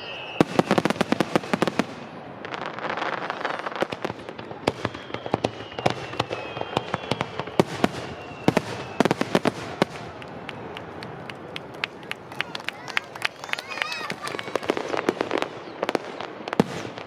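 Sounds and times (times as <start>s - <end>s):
faint high whistle: 0.0s - 1.0s, 4.6s - 9.4s
fireworks bangs and crackling pops: 0.2s - 17.0s.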